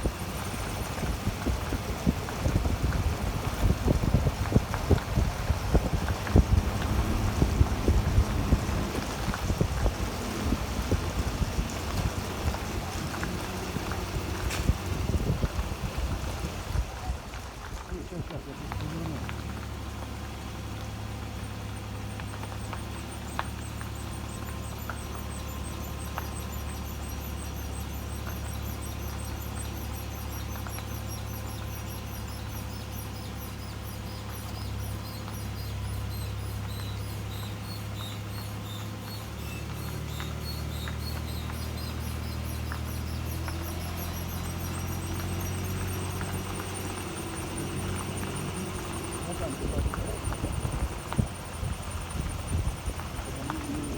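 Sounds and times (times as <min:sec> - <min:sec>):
rapid high-pitched squeaking: 0:21.3 - 0:53.9.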